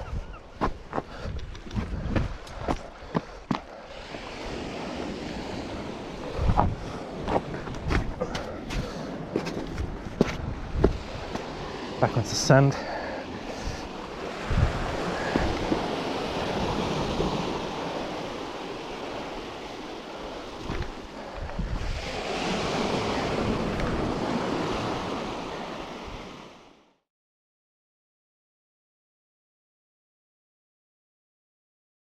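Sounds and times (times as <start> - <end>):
wind buffeting microphone: 0.0 - 3.4, 4.0 - 12.0, 13.4 - 25.2
surf breaking on shore: 3.9 - 26.6.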